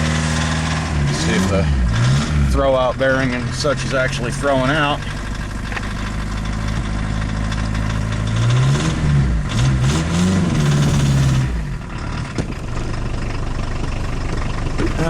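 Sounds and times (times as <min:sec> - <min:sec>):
diesel engine idling and revving: 0:00.0 - 0:15.0.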